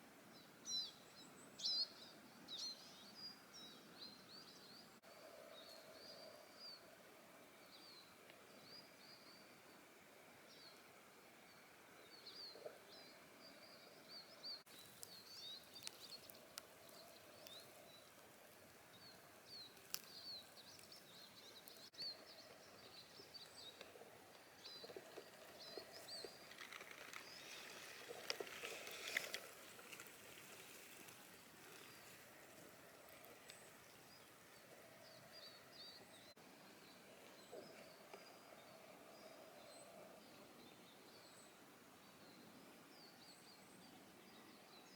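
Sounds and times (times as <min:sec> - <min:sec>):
rustle: 0:00.0 - 0:44.9
small birds chirping: 0:11.5 - 0:44.9
faint clicks: 0:14.7 - 0:22.5, 0:23.4 - 0:34.8.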